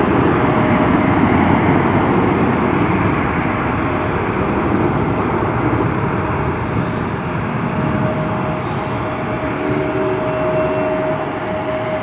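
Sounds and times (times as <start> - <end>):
jet engine rushing and whining: 0.0 - 12.0.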